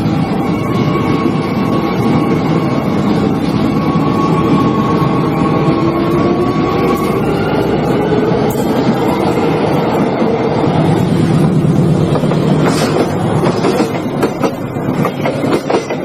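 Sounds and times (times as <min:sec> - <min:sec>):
train rumbling on rails: 0:00.0 - 0:16.0.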